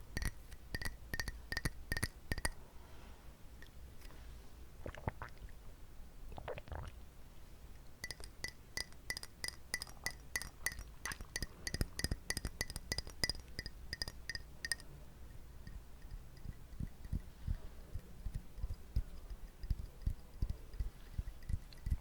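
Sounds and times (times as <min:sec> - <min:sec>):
taps on glass container: 0:00.1 - 0:02.6, 0:08.0 - 0:14.9, 0:15.6 - 0:17.3, 0:18.0 - 0:22.0.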